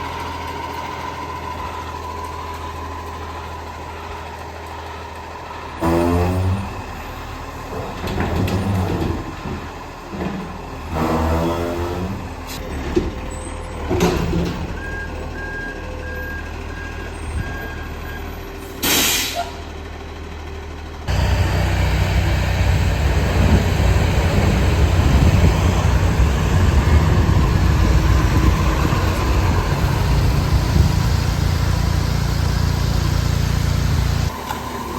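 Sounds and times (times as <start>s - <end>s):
diesel engine revving: 0.0s - 34.9s
air brakes hissing: 18.5s - 19.6s.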